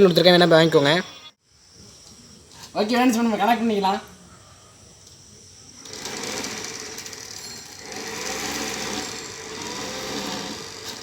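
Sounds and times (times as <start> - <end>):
small blower fan running: 5.8 - 11.0.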